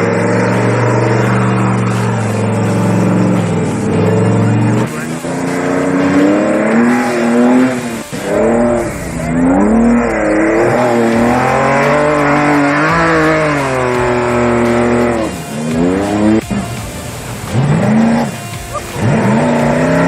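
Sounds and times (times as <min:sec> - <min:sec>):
race vehicle engine running hard: 0:00.0 - 0:20.0.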